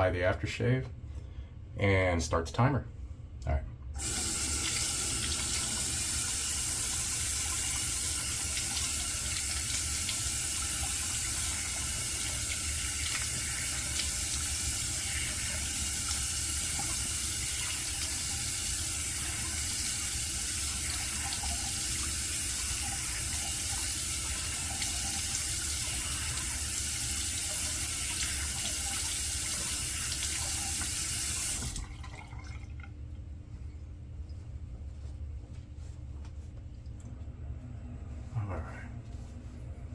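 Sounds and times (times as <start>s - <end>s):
sink tap running: 4.0s - 32.4s.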